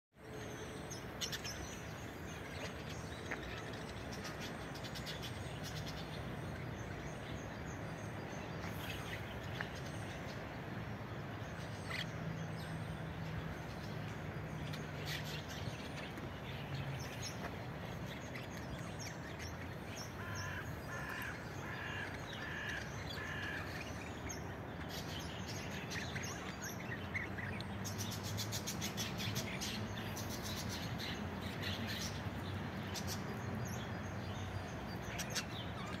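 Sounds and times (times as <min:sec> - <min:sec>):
birds chirping: 0:00.2 - 0:36.0
repeated bird calls: 0:14.7 - 0:36.0.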